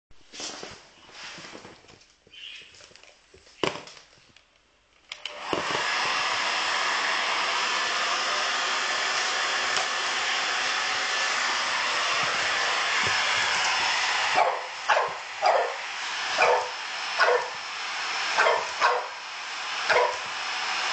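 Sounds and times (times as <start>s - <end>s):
hair dryer blowing: 5.1s - 20.9s.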